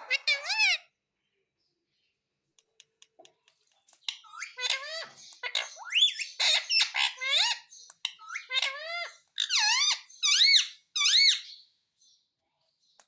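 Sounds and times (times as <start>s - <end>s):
parrot chattering and squawking: 0.0s - 1.0s, 2.8s - 11.6s.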